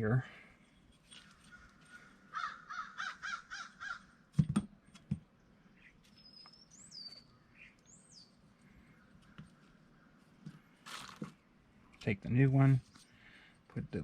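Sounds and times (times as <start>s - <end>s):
crow cawing: 1.5s - 4.2s
small bird chirping: 5.8s - 10.2s.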